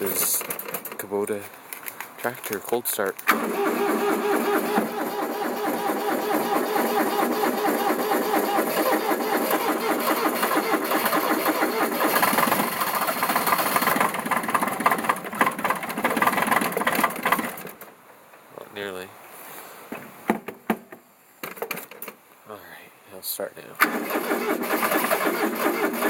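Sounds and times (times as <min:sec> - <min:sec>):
diesel engine cranking: 0:00.0 - 0:01.4, 0:02.4 - 0:18.0, 0:23.8 - 0:26.0.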